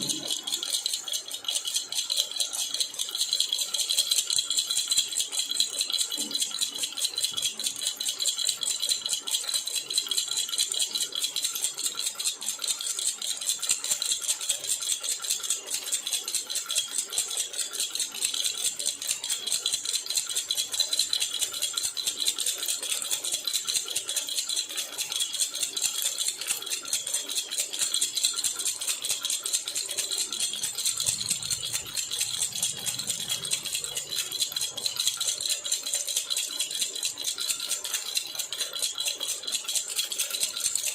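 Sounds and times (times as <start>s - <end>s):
metal baby rattle jingling: 0.0s - 40.9s.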